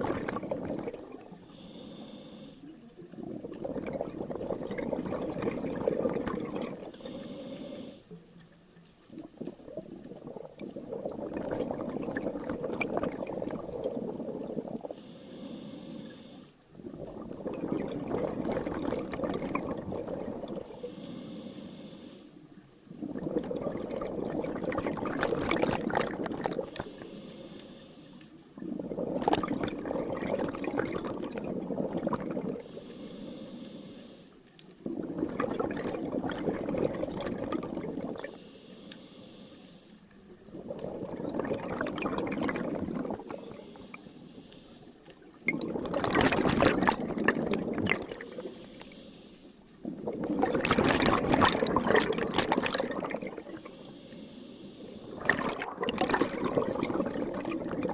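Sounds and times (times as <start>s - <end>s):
bubbly rush of exhaled air: 0.0s - 1.4s, 3.1s - 7.2s, 9.1s - 15.0s, 16.8s - 20.8s, 22.9s - 27.1s, 28.6s - 32.9s, 34.8s - 38.4s, 40.4s - 43.9s, 45.4s - 48.9s, 49.8s - 53.6s, 55.1s - 57.9s
faint hiss of inhalation: 1.4s - 2.8s, 6.9s - 8.2s, 14.8s - 16.6s, 20.6s - 22.5s, 26.6s - 28.5s, 32.6s - 34.5s, 38.2s - 40.1s, 43.2s - 45.3s, 48.2s - 49.8s, 53.4s - 55.3s.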